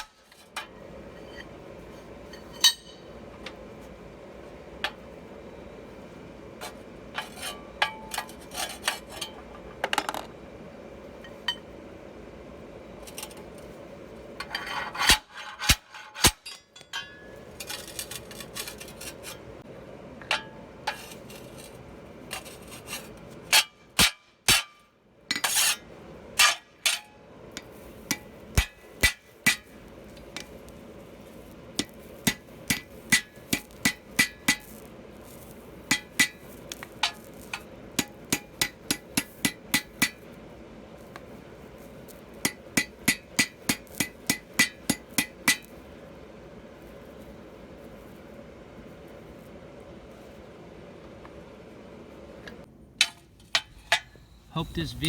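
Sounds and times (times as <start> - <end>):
hammer striking metal: 2.6 - 3.1.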